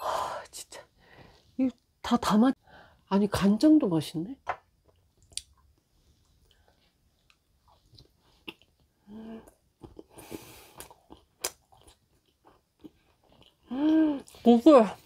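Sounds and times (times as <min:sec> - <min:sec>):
chewing sushi: 0:04.8 - 0:14.5
wet mouth clicks and smacks: 0:04.9 - 0:05.6, 0:10.8 - 0:11.9.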